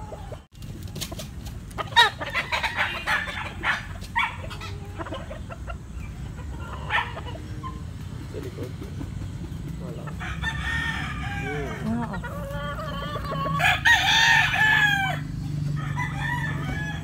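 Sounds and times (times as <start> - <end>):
roosters crowing: 0.0 - 17.0.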